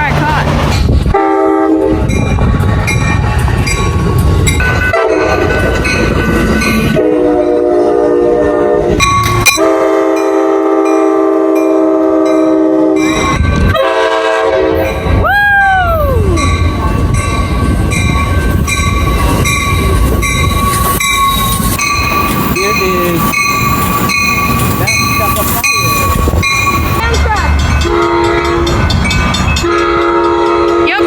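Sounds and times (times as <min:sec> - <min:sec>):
passing train rumbling: 0:00.0 - 0:31.0
locomotive air horn blasts: 0:01.1 - 0:02.0, 0:04.9 - 0:05.3, 0:06.9 - 0:15.0, 0:27.8 - 0:28.7, 0:29.6 - 0:31.0.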